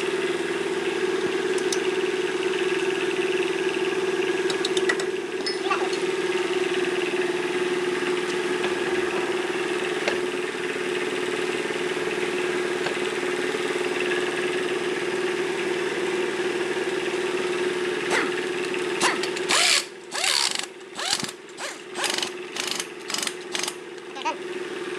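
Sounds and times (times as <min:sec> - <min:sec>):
car engine droning: 0:00.0 - 0:24.9.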